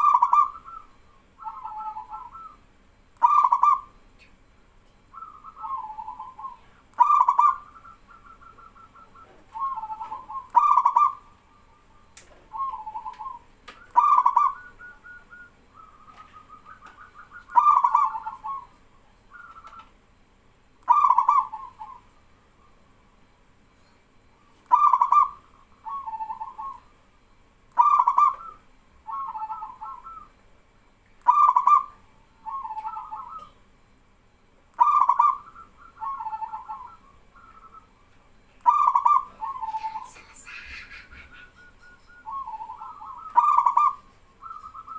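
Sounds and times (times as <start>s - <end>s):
doves cooing: 0.0s - 4.4s, 5.0s - 20.3s, 20.9s - 30.4s, 31.2s - 33.6s, 34.7s - 44.9s.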